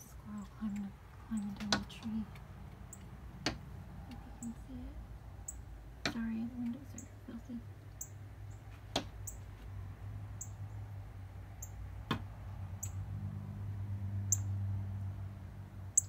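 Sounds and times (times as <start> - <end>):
steady low hum: 0.0 - 16.0
small bird chipping: 0.4 - 4.7, 5.4 - 9.5, 10.3 - 10.9, 11.6 - 12.2, 12.8 - 13.0, 14.3 - 14.6
sharp taps: 8.7 - 9.3.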